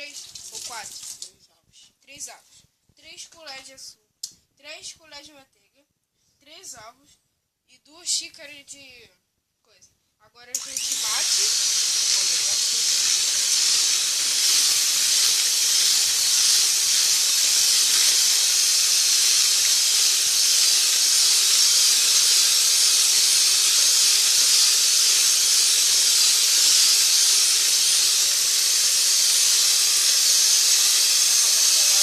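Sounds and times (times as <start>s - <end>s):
electric mixer beating batter: 10.6s - 32.0s.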